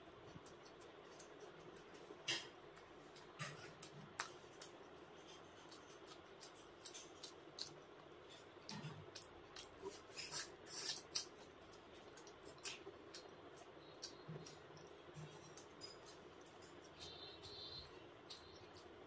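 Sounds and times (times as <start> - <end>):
squishy chewing: 0.0 - 19.0.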